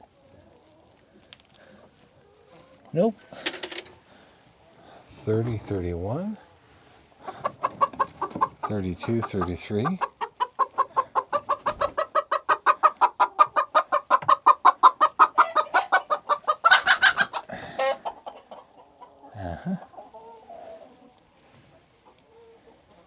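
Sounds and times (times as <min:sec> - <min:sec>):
hen clucking: 0:07.2 - 0:21.2.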